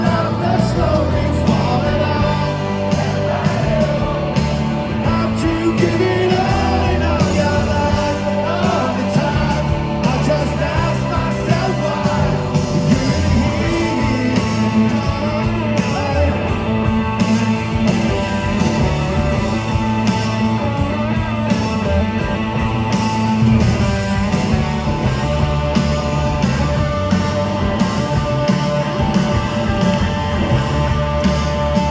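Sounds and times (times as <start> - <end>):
person singing: 0.0 - 16.9
rock band playing live: 0.0 - 31.9.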